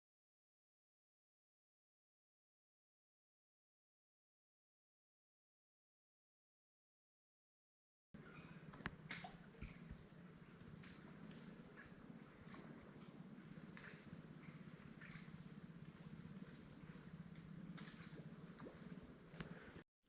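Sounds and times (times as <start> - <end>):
insects droning high-pitched buzz: 8.2 - 19.8
low hum: 8.2 - 19.8
faint ticks: 8.4 - 19.8.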